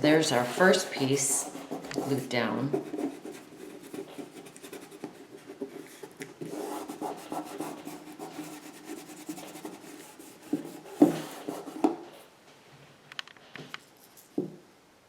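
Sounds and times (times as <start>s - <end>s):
hands rubbing paper: 0.0s - 12.0s.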